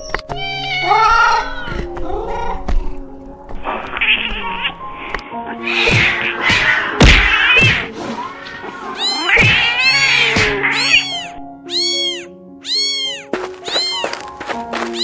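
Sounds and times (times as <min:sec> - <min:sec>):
music of sustained notes: 0:00.0 - 0:05.7, 0:13.3 - 0:15.0
cat meowing: 0:09.0 - 0:15.0.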